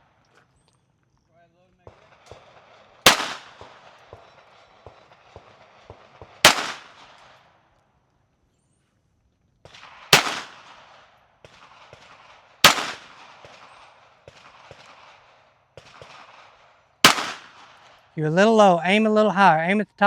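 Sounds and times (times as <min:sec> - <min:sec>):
pistol shots with echo: 0:01.8 - 0:07.4, 0:09.7 - 0:18.0.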